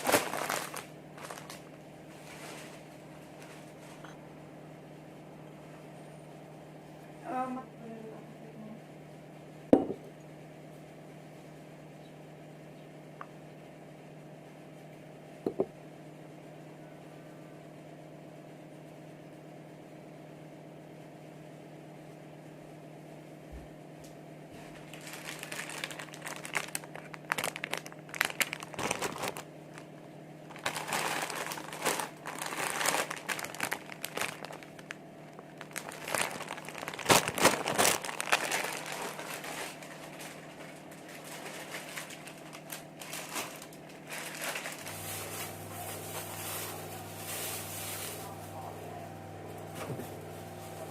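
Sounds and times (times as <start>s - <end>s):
packaging crinkling: 0.0s - 3.7s, 24.6s - 48.5s
low hum: 24.6s - 50.9s.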